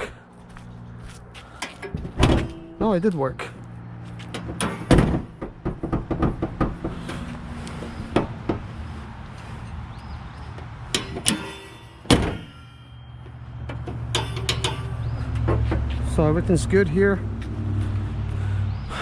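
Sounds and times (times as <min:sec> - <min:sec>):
metal clunks and clicks of hood latch: 0:01.6 - 0:02.8, 0:04.3 - 0:06.7.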